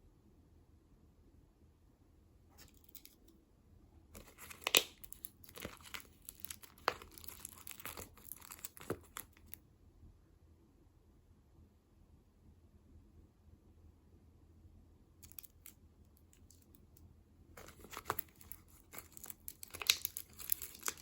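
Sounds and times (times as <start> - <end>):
snack wrapper crinkling and tearing: 4.2 - 9.6, 15.2 - 16.6, 17.6 - 21.0.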